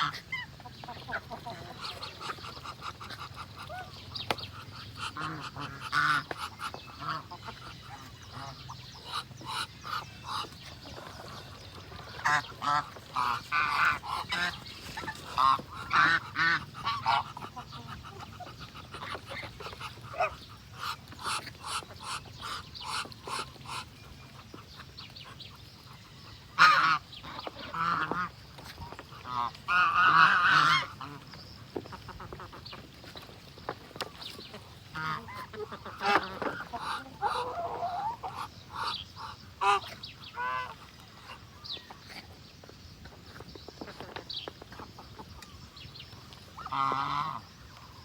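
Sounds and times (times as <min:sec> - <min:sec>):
ducks calling: 0:00.0 - 0:42.4, 0:43.0 - 0:48.0
geese honking: 0:05.0 - 0:23.9, 0:26.5 - 0:31.2, 0:34.9 - 0:40.8, 0:46.6 - 0:48.0.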